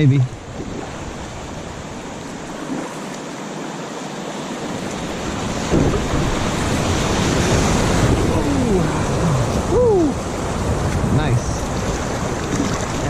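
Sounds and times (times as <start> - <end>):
low rumble of water: 0.0 - 13.0
river water rushing: 0.0 - 13.0.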